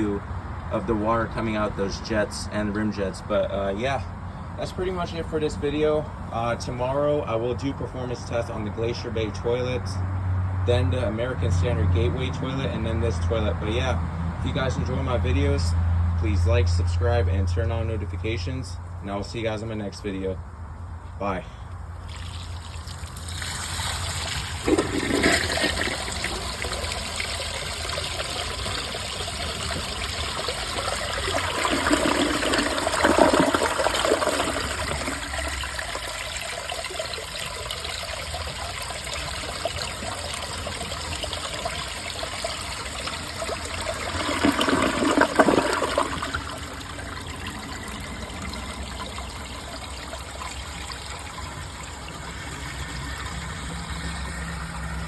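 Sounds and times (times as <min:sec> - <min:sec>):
toilet water rushing: 0:22.0 - 0:55.0.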